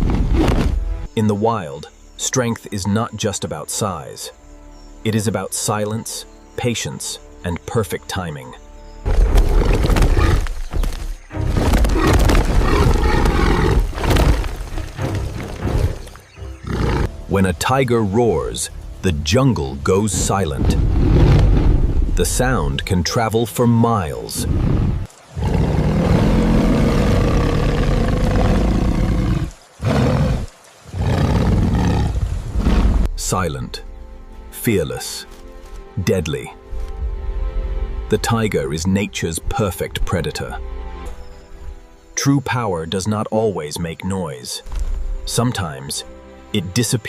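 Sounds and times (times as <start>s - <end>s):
background music: 0.0s - 47.0s
tiger roaring: 11.9s - 14.4s, 16.6s - 17.1s, 24.4s - 33.1s.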